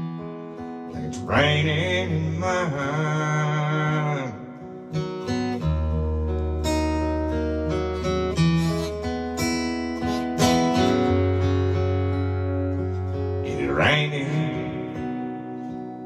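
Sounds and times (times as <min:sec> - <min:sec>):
acoustic guitar picked and strummed: 0:00.0 - 0:16.0.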